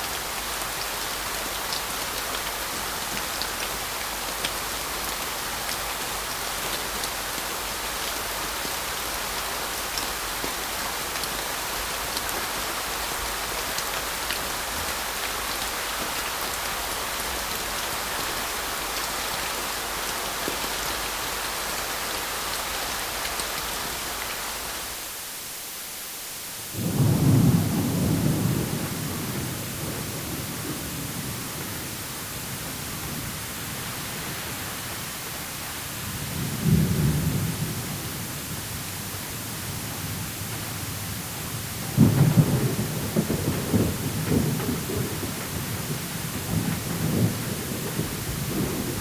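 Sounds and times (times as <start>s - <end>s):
steady rain: 0.0s - 49.0s
low rumble of thunder: 26.8s - 35.2s, 35.9s - 49.0s.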